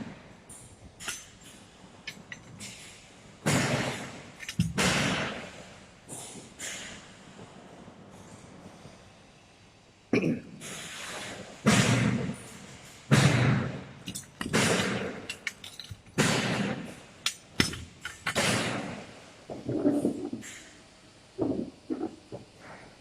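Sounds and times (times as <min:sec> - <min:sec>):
metal parts knocking and scraping: 0:00.5 - 0:05.5, 0:14.0 - 0:19.0.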